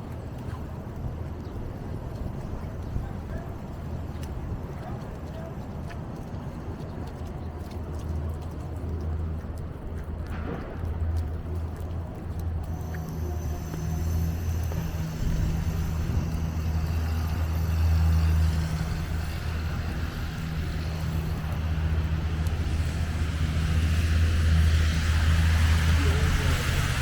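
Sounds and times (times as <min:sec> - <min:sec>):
faint street traffic: 0:00.0 - 0:27.0
vehicle engine humming: 0:10.3 - 0:27.0.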